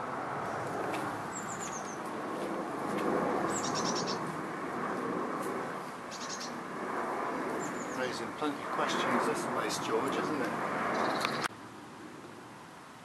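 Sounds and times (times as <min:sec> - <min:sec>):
outdoor background hiss: 0:00.0 - 0:13.0
songbird chirping: 0:06.1 - 0:06.6.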